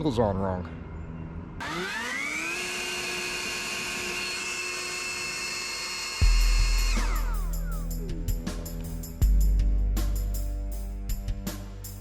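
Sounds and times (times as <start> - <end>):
power tool motor whining: 1.6 - 7.8.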